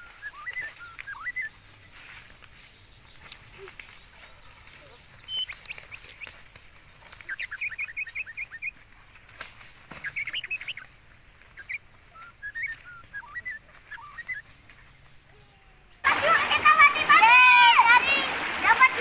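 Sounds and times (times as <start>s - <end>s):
quick high bird chirps: 0.0s - 2.2s, 3.1s - 4.2s, 5.2s - 6.4s, 7.2s - 8.8s, 9.7s - 11.0s, 11.6s - 14.6s
upward-hooked bird calls: 0.0s - 8.9s, 9.6s - 17.0s.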